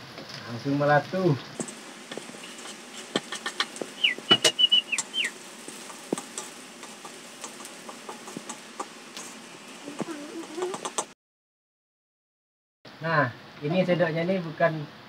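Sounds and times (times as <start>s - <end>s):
shallots frying with pops: 0.0s - 11.2s.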